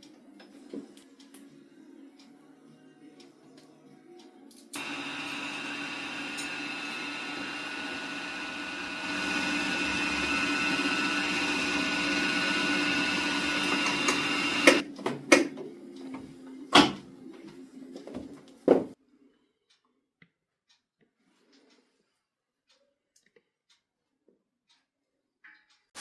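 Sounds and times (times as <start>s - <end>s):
small electric motor whining: 4.8s - 14.8s.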